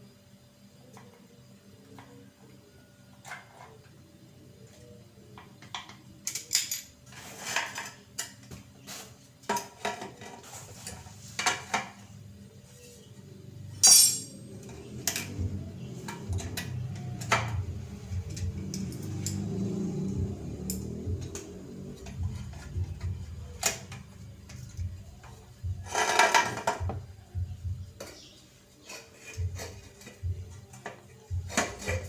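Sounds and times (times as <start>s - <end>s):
metal tools clanking on metal: 13.8s - 15.4s, 25.9s - 26.9s.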